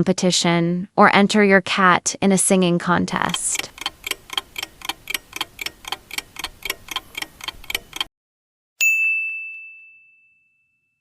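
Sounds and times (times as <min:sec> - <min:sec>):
clock ticking: 0:03.2 - 0:08.1
bell ding: 0:08.8 - 0:11.0.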